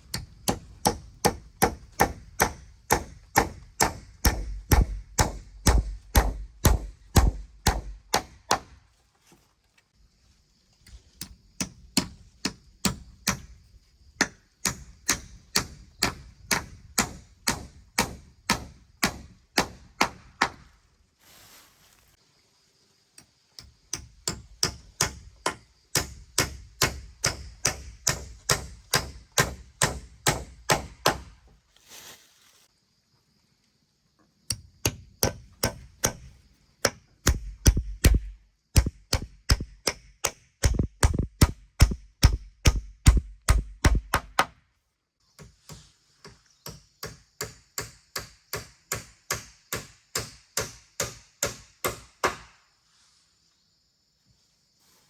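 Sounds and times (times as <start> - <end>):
hand tool striking: 0.1 - 8.7, 34.5 - 44.5.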